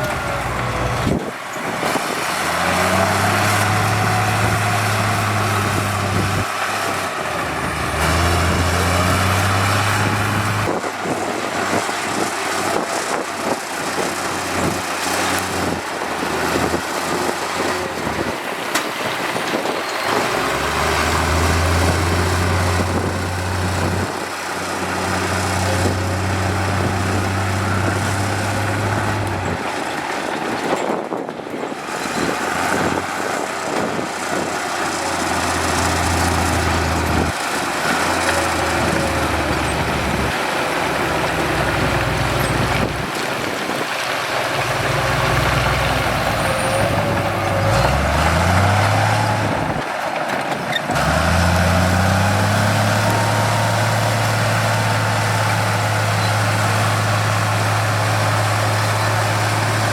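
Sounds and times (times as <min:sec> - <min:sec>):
engine revving: 0:00.0 - 0:29.9, 0:31.8 - 0:43.8, 0:44.4 - 0:59.9
diesel machinery engine drone: 0:00.0 - 0:59.9.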